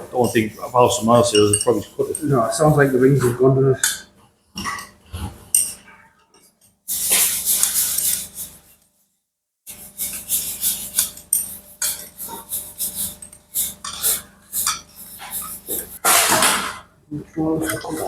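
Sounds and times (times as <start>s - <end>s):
metal tools and engine parts clinking: 1.2s - 2.6s, 3.8s - 6.8s.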